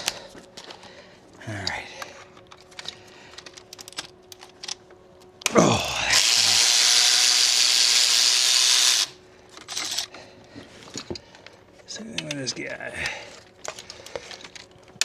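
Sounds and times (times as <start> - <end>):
tools clicking: 1.6 - 10.2, 12.2 - 15.0
person saying oh: 5.5 - 6.6.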